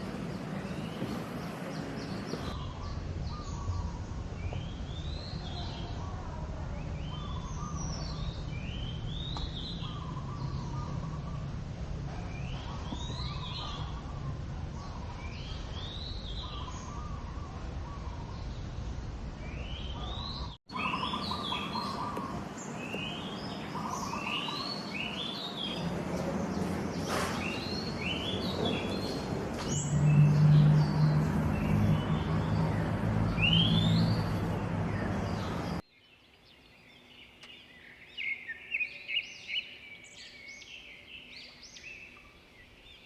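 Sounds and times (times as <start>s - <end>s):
songbirds calling: 0.0s - 43.0s
lower pulsing bird call: 19.5s - 25.9s.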